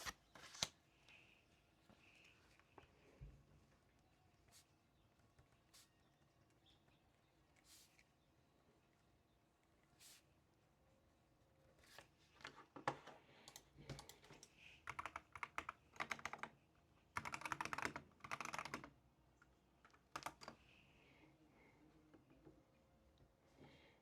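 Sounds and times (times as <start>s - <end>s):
computer keyboard typing: 13.4s - 19.0s, 19.8s - 20.6s.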